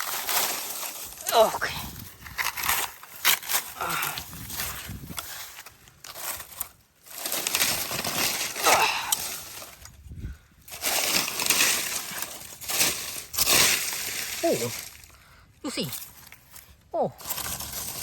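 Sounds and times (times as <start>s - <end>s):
dry leaves crunching and rustling: 0.0s - 15.1s, 15.7s - 18.0s.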